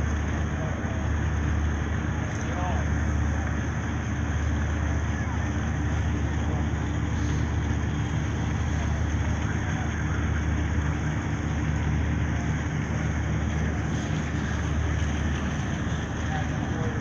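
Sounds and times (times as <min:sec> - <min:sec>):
constant wash of noise: 0:00.0 - 0:17.0
engine running steadily: 0:00.0 - 0:17.0.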